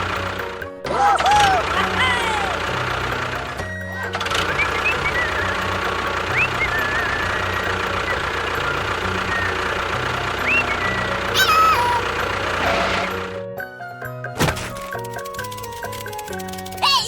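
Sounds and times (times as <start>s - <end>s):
engine rumbling: 0.0s - 17.0s
high chirping whistles: 4.4s - 9.8s, 10.4s - 11.7s.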